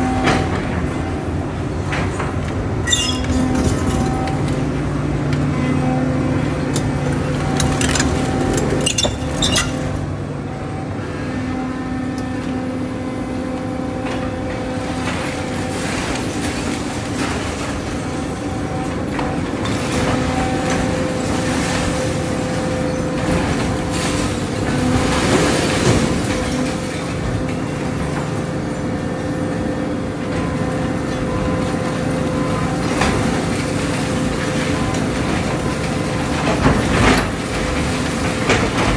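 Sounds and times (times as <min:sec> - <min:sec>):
diesel engine running under load: 0:00.0 - 0:38.9
debris crunching and falling: 0:02.8 - 0:10.0.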